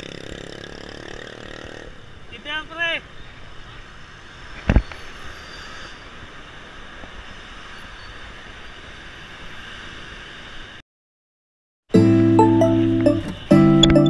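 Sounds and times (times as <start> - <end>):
bicycle road and wind noise: 0.0 - 10.8
car traffic: 0.0 - 10.8.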